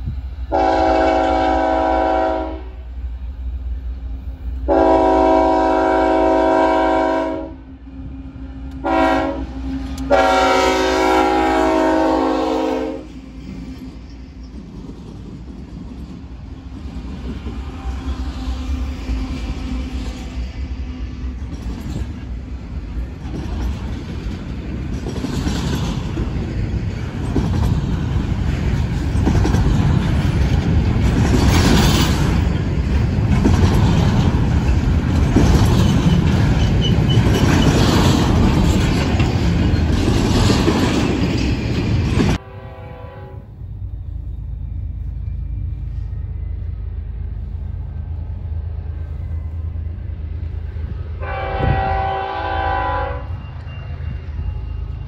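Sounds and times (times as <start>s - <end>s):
freight train passing: 0.0s - 55.0s
wheels clattering on rails: 13.1s - 42.4s.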